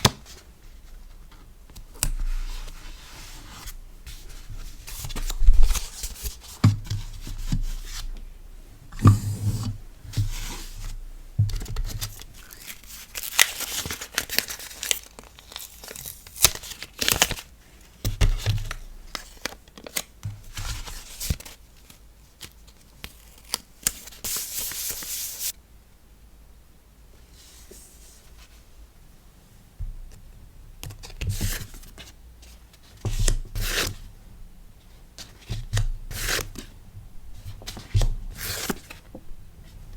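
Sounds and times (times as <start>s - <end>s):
packaging torn and crinkled: 12.0s - 17.5s.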